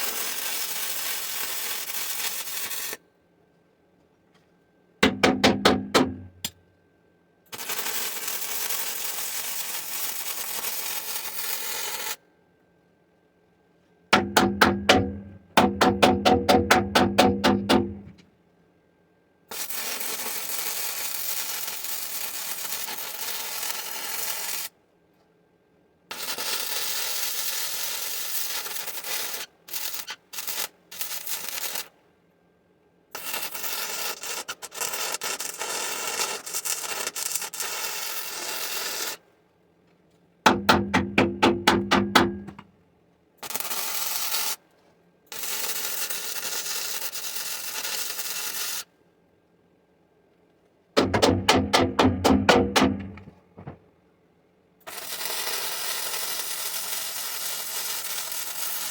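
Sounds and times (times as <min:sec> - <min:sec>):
electric welding crackle: 0:00.0 - 0:03.0, 0:07.5 - 0:12.2, 0:19.5 - 0:24.8, 0:26.1 - 0:32.0, 0:33.1 - 0:39.2, 0:43.4 - 0:44.6, 0:45.3 - 0:48.9, 0:54.8 - 0:58.9.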